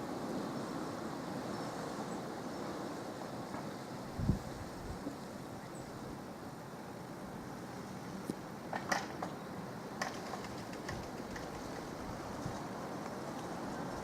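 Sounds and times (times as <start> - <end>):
distant helicopter rumble: 8.6 - 12.5.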